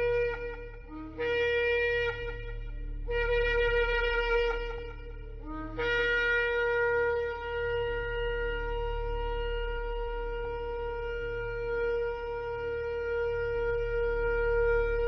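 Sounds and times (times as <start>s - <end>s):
shofar blowing long notes: 0.0s - 15.0s.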